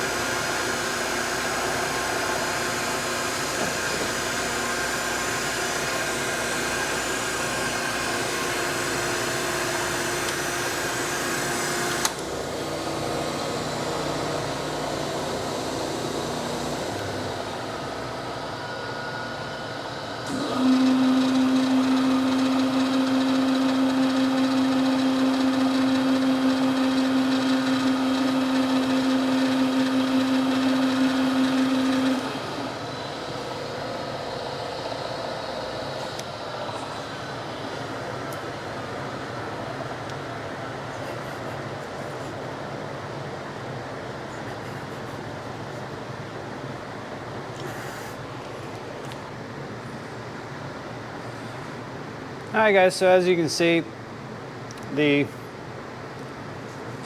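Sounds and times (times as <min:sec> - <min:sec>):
grinder machine whirring: 0:00.0 - 0:38.9.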